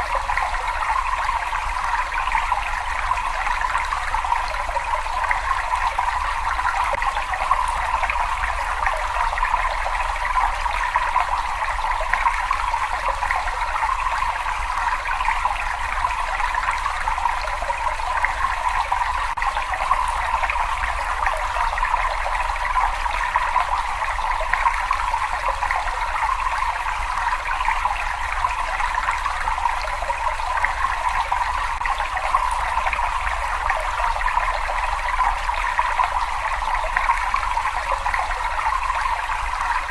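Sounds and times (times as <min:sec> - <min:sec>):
water trickling in a cave: 0:00.0 - 0:39.9.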